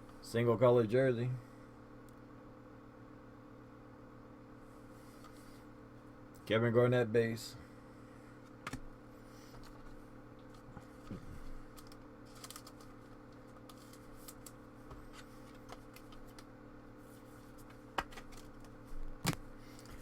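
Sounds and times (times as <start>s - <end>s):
low electrical hum: 0.0s - 20.0s
trading cards clicking and flicking: 11.7s - 16.5s.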